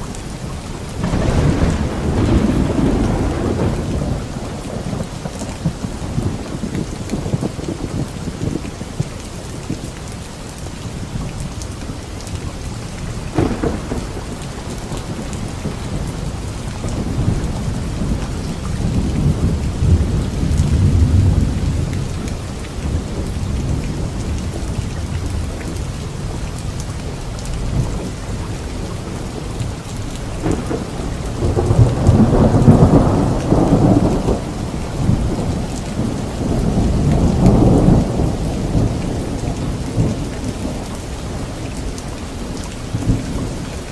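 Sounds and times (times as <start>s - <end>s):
steady rain: 0.0s - 43.9s
rolling thunder rumbles: 0.9s - 9.8s, 12.8s - 43.9s
thunder crack: 1.0s - 8.6s, 13.3s - 21.8s, 30.3s - 39.2s.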